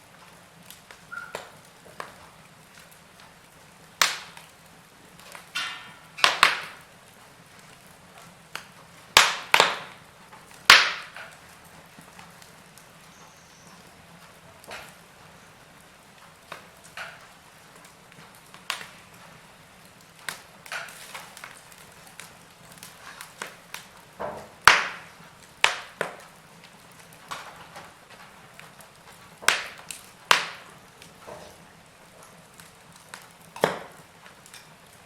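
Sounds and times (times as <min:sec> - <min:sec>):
log fire crackling: 0:00.0 - 0:35.0.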